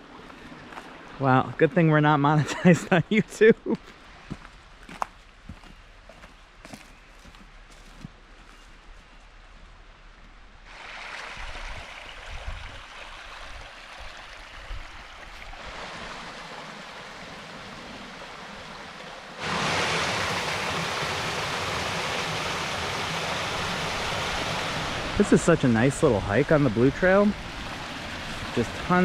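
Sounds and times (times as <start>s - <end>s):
stream rushing over rocks: 10.7s - 29.0s.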